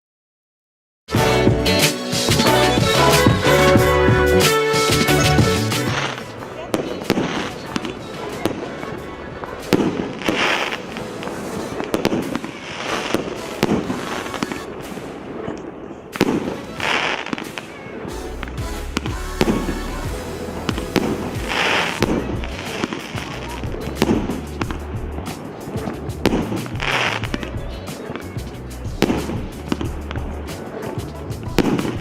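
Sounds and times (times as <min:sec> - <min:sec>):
firework bursts crackling: 0:01.1 - 0:32.0
firework shots launching: 0:05.8 - 0:08.6, 0:09.6 - 0:28.2.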